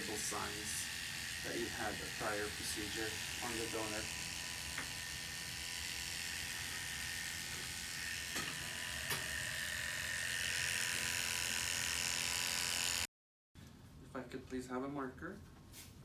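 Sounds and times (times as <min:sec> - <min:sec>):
electric hair clippers buzzing: 0:00.0 - 0:13.1.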